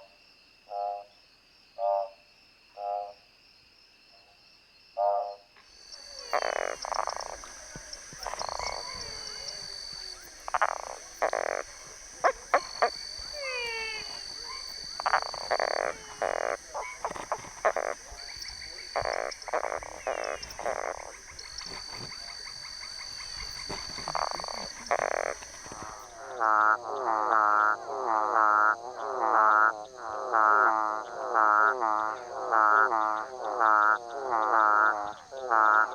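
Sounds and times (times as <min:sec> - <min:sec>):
high buzz of calling animals: 0:05.8 - 0:26.6
treefrog calling: 0:05.8 - 0:35.9.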